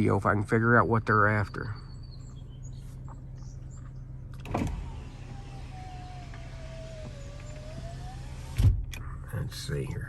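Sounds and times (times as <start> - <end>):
steady low hum: 0.0 - 10.0
power window motor whine: 4.4 - 8.8.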